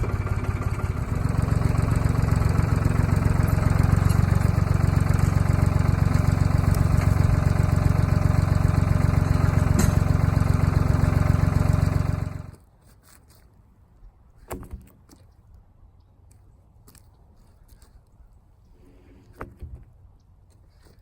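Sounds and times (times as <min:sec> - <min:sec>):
sawmill engine running: 0:00.0 - 0:12.6.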